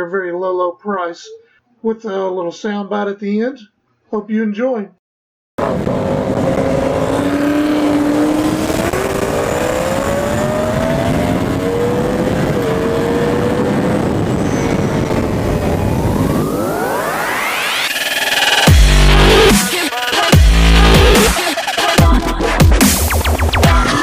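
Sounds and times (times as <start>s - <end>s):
vehicle engine under load: 5.6s - 16.7s.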